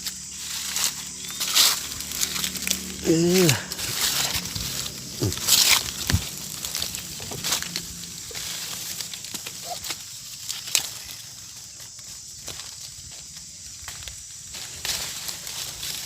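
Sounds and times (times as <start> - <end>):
twigs snapping: 0.0 - 11.4
leaves and twigs rustling: 0.0 - 16.0.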